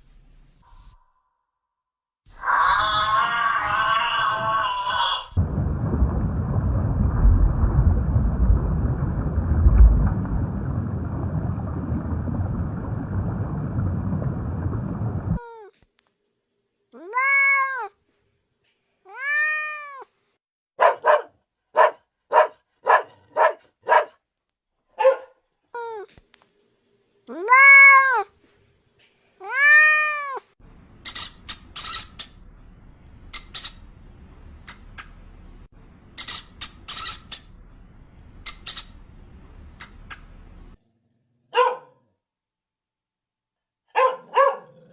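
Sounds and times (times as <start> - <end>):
background hiss: 0.0 - 1.0
cat meowing: 2.4 - 5.3, 17.0 - 17.9, 19.1 - 20.1, 27.3 - 28.2, 29.4 - 30.5.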